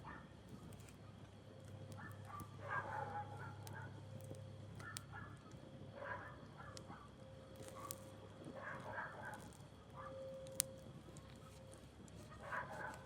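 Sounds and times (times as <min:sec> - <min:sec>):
low steady hum: 0:00.0 - 0:13.0
campfire crackling and popping: 0:03.4 - 0:05.7, 0:06.7 - 0:08.6, 0:09.2 - 0:13.0.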